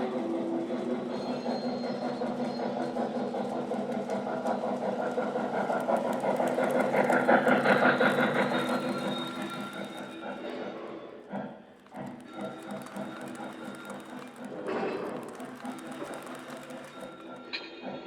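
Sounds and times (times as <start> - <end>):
model train running on track: 0.0 - 18.0
recorded train engine sounds: 0.0 - 18.0
fine rapid clicks: 4.8 - 10.6, 11.8 - 17.5.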